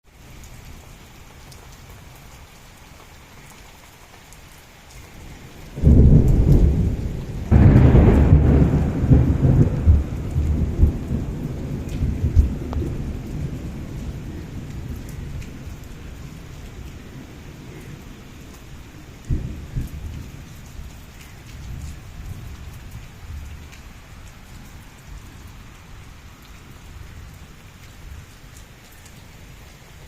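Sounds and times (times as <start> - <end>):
steady rain falling: 0.0 - 30.0
thunder rumbling and cracking: 5.7 - 23.8.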